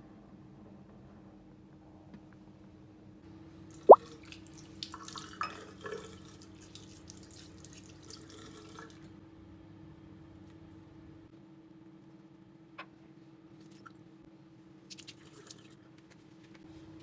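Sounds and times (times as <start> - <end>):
water running from a tap: 4.1 - 9.0.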